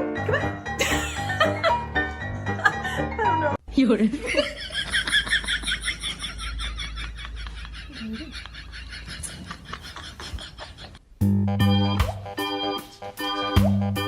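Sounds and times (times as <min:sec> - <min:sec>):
music: 0:00.0 - 0:03.6, 0:11.2 - 0:14.0.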